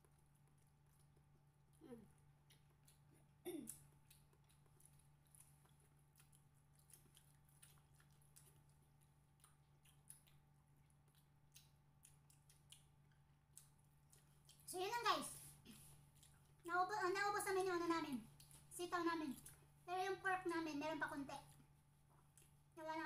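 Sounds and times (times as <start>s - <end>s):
faint chewing: 0.0s - 23.0s
low steady hum: 0.0s - 23.0s.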